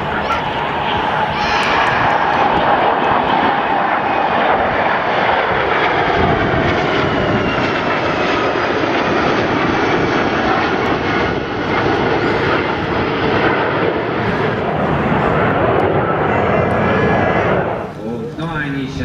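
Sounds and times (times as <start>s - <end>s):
whining tones sliding in pitch: 0.0s - 5.4s
jet engine roar: 0.0s - 19.0s.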